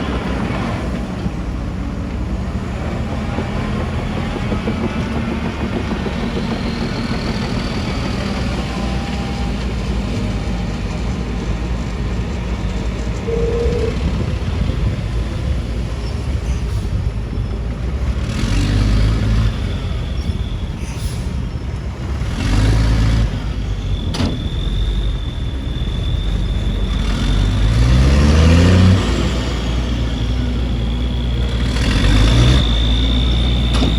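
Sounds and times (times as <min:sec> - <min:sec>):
heavy machinery engines revving: 0:00.0 - 0:33.9
thin high whine: 0:12.9 - 0:17.0.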